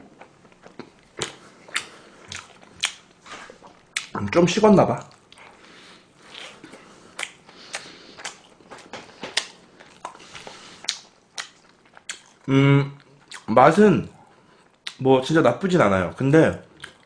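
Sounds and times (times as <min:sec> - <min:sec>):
person chewing: 0:00.0 - 0:04.3, 0:05.0 - 0:13.5, 0:16.7 - 0:17.0.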